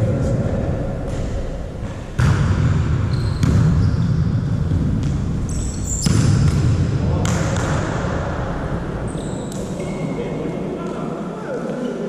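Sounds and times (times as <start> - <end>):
volleyball being hit: 1.0 - 3.8, 5.9 - 8.2
shoe squeaks: 3.1 - 4.2, 5.5 - 6.1, 9.1 - 10.1.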